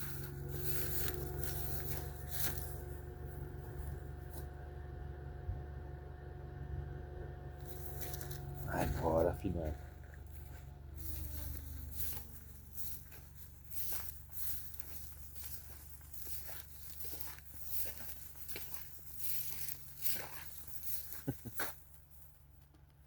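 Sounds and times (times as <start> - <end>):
steady low hum: 0.0 - 23.0
rustling and crackling clicks: 10.0 - 23.0.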